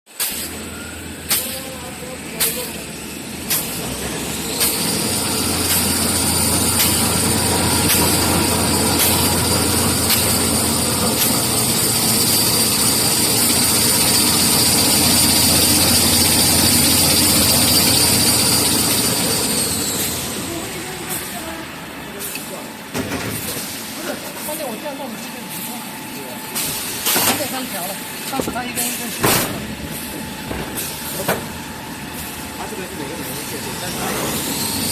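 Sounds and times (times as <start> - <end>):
machine humming with clicks: 0.2 - 21.4
high machine whine: 0.4 - 34.9.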